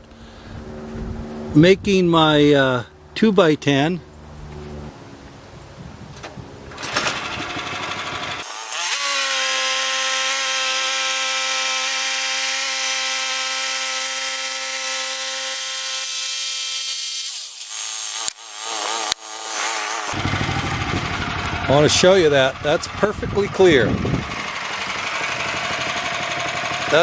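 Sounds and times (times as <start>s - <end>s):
saw blade cutting board: 6.8s - 21.6s, 24.3s - 27.0s
gas engine revving: 18.3s - 27.0s.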